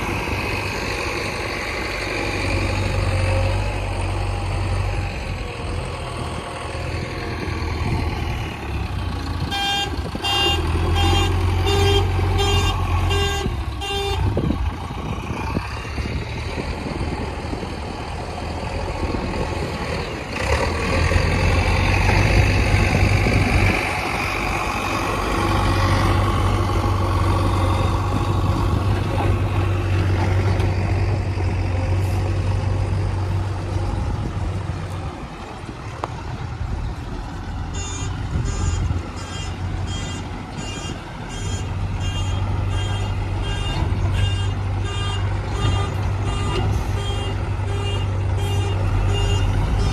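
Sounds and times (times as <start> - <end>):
heavy diesel engine running: 0.0 - 49.9.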